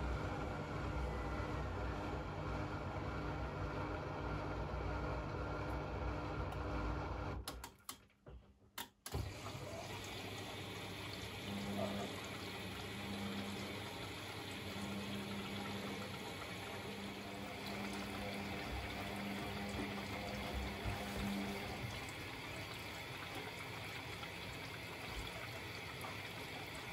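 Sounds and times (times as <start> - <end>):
water splashing inside machine: 9.1 - 26.9
washing machine rumble: 9.2 - 26.9.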